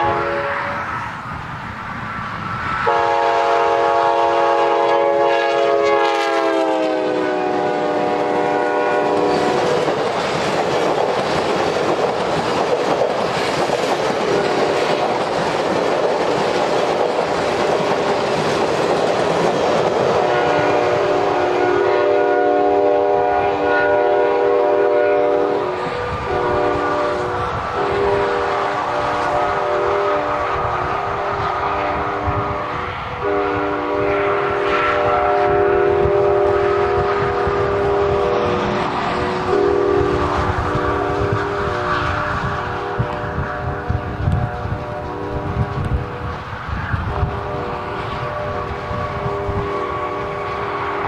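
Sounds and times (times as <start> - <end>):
train air horn: 0.0 - 1.1, 2.8 - 10.0, 14.2 - 14.9, 20.0 - 51.0
train wheels clicking over rail joints: 9.1 - 21.0.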